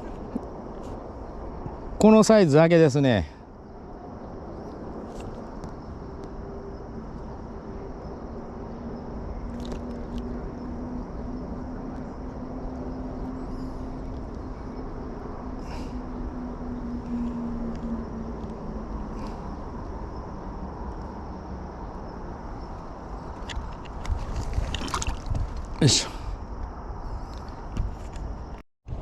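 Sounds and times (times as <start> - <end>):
distant engine droning: 3.3 - 25.2
outdoor rumble: 3.5 - 29.0.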